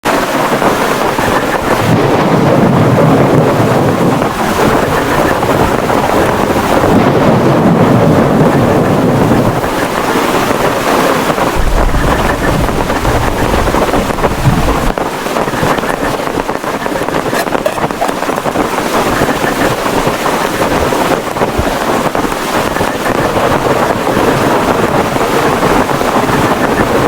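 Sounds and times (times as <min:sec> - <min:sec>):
heavy rain: 0:00.0 - 0:27.0
wind gusts buffeting microphone: 0:00.0 - 0:27.0
deep low rumble: 0:01.6 - 0:09.6, 0:11.5 - 0:15.0.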